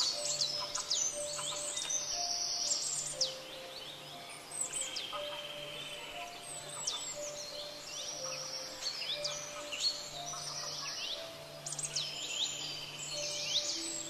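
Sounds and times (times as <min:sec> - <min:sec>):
birdsong whistles and trills: 0:00.0 - 0:14.0
soft background music: 0:00.0 - 0:14.0.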